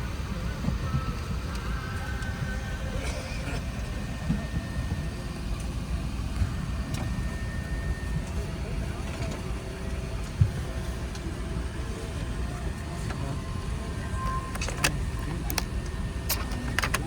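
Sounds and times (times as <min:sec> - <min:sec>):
aircraft cabin low rumble: 0:00.0 - 0:17.0
sharp clicks: 0:14.5 - 0:17.0.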